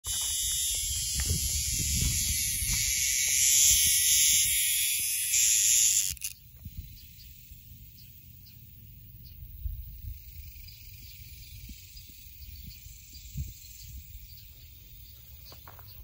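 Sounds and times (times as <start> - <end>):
cicada distress buzz: 0.0 - 16.0.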